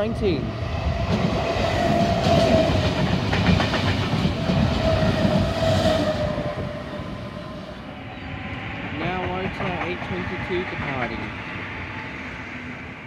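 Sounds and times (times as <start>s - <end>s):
electric train passing: 0.0s - 13.0s
steady train whine: 0.0s - 13.0s
wheels clicking on track: 9.0s - 11.3s.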